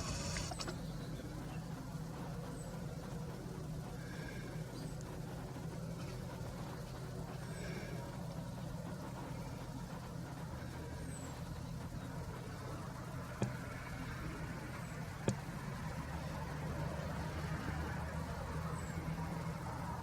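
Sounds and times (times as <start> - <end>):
sharp clicks: 0.0 - 0.8
low engine rumble: 0.0 - 20.0.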